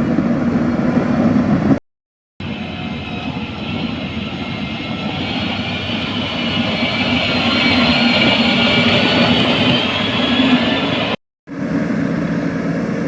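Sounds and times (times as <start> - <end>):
heavy machinery running: 2.4 - 12.0
high whine: 2.4 - 12.9.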